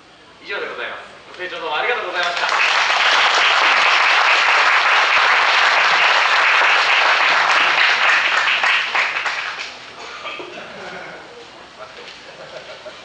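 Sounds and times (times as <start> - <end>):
audience applauding: 2.2 - 9.8.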